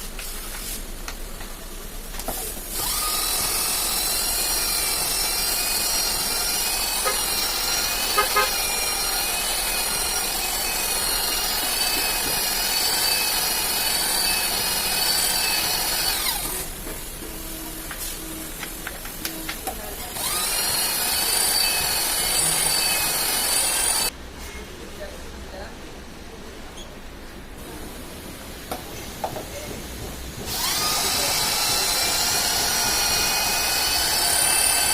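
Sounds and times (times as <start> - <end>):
power tool whining: 2.2 - 17.2, 19.3 - 24.1, 30.4 - 34.9.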